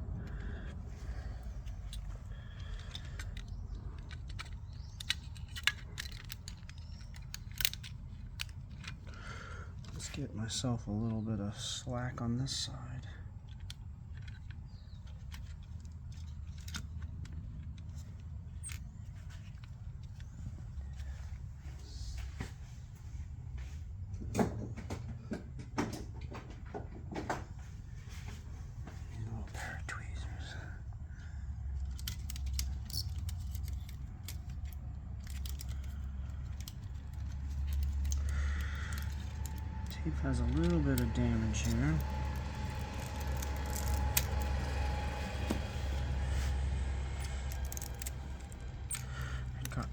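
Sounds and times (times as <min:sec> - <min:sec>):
hands handling plastic cassette: 0:00.0 - 0:11.2, 0:13.2 - 0:21.5, 0:31.2 - 0:49.9
low steady hum: 0:00.0 - 0:49.9.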